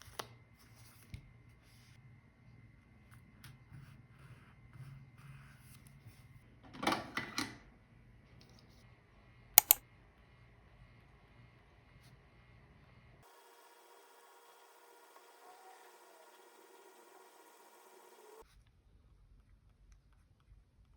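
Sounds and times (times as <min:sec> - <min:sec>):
sharp clicks: 0:09.6 - 0:09.8.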